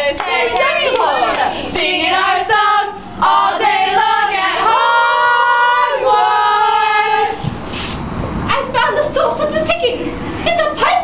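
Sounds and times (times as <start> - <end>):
girls singing unaccompanied: 0.0 - 7.4.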